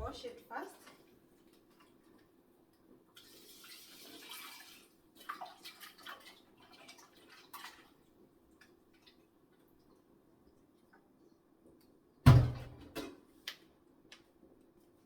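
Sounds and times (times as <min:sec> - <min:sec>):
splashes and knocks washing meat: 0:03.1 - 0:10.0, 0:12.3 - 0:13.2
water running from a tap: 0:03.2 - 0:07.9.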